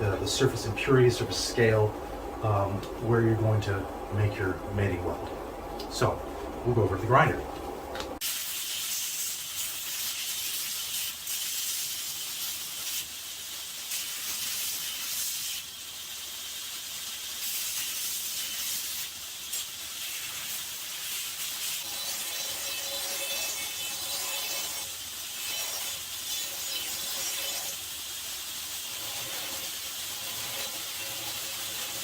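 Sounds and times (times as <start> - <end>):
grinder grinding steel: 21.6 - 32.0.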